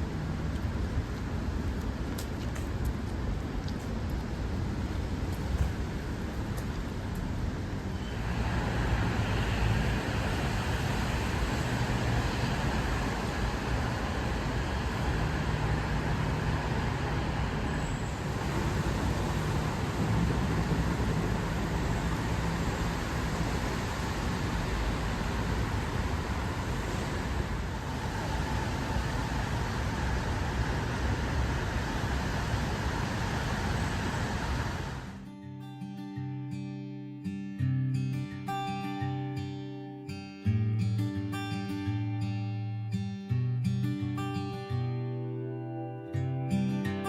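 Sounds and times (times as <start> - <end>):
road traffic rumble: 0.0 - 35.2.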